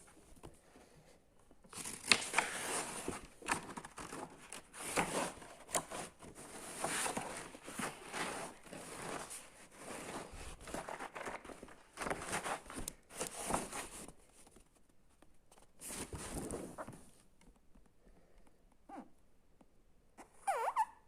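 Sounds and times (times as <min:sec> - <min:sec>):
packaging rustling: 0:01.7 - 0:14.6.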